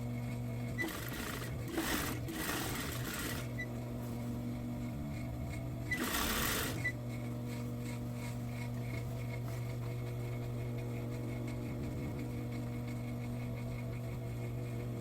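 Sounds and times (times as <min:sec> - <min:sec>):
sewing machine stitching: 0:00.8 - 0:03.6, 0:05.9 - 0:06.9.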